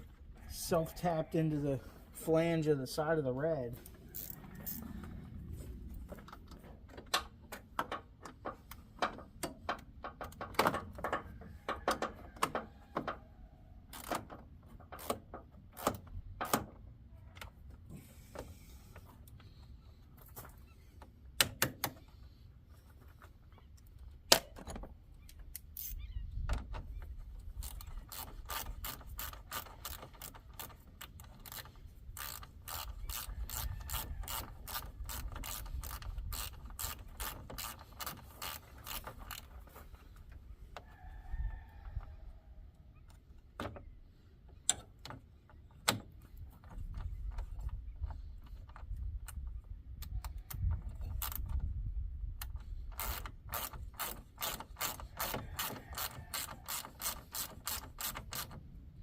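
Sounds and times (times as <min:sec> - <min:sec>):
socket ratchet clicking: 0:52.4 - 0:58.6.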